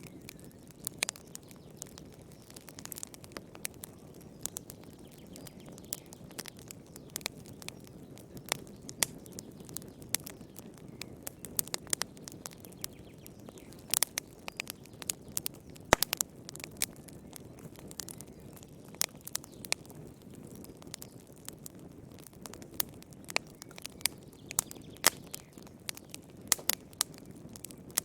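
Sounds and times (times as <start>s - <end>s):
wood fire crackling and popping: 0.0s - 28.0s.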